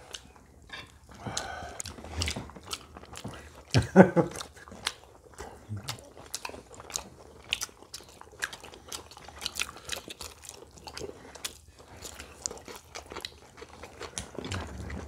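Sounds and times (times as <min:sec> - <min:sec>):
chewing: 0:00.0 - 0:15.0.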